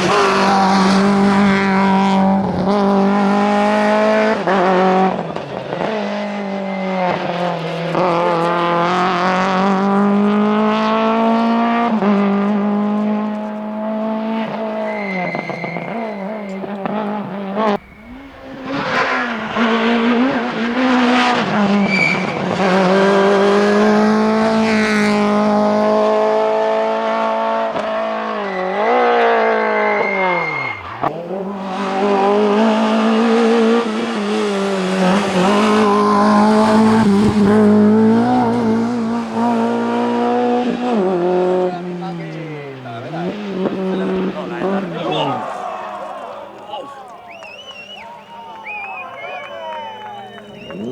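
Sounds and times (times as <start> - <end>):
rally car engine revving: 0.0 - 50.9
tyres squealing: 14.3 - 22.9, 28.2 - 37.4, 41.6 - 50.9.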